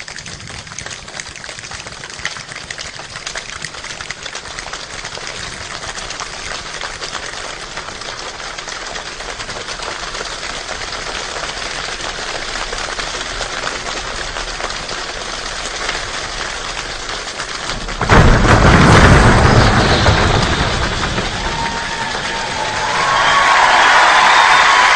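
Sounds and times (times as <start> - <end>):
human imitation of rain clicks: 0.0 - 19.0
loud burst with deep rumble: 17.6 - 24.9.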